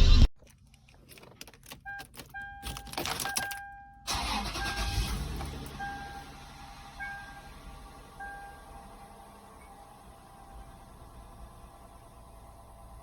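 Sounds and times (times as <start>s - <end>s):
car engine starting and idling: 0.4s - 13.0s
car warning chime dinging: 1.7s - 9.0s.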